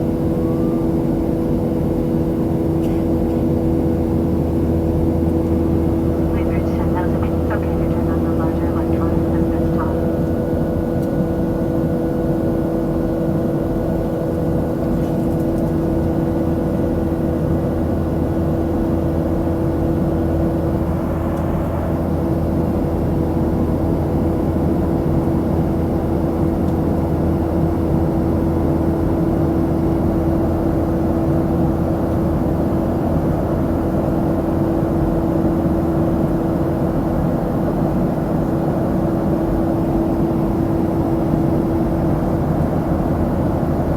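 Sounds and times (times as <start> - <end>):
steady hums: 5.4 - 10.6.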